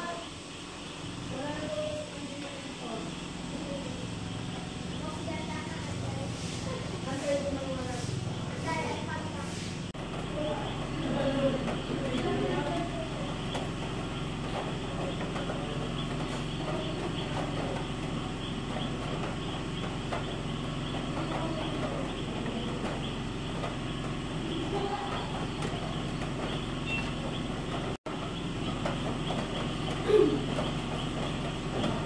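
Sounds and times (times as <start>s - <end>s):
steady rain hiss: 0.0s - 14.8s.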